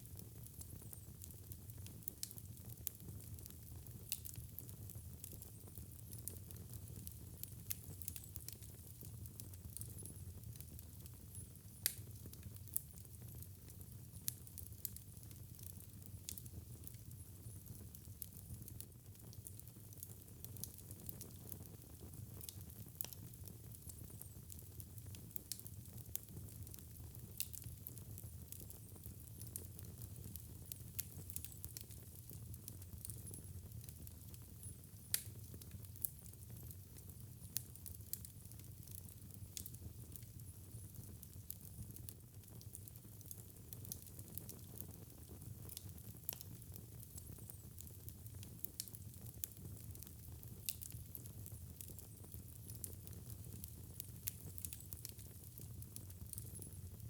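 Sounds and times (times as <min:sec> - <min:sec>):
fire crackles and pops: 0:00.0 - 0:57.0
low rumble of flame: 0:00.0 - 0:57.0.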